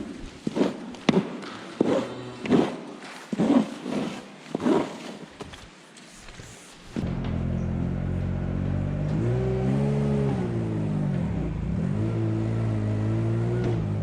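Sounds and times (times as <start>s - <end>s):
vehicle engine running: 7.0s - 14.0s.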